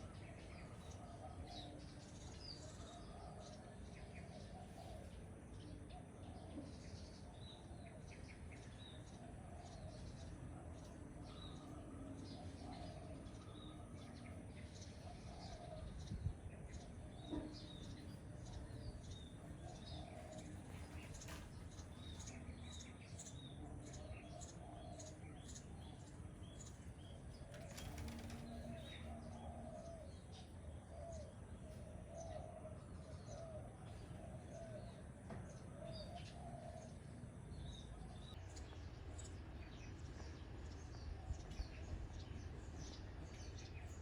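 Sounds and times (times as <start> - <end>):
wing fluttering: 26.7 - 29.1.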